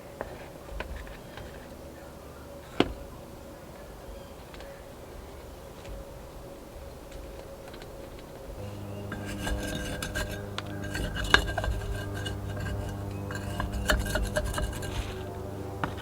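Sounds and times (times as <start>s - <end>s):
steady low hum with higher tones: 8.5s - 16.0s
pots and tools clinking and scraping: 8.6s - 16.0s.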